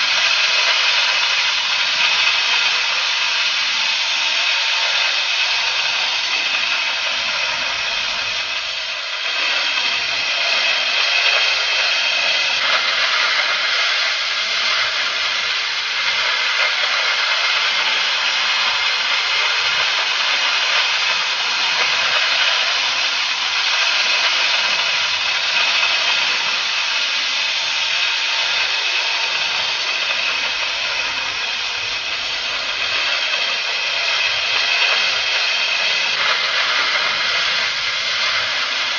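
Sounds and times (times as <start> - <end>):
torch hissing: 0.0 - 38.9.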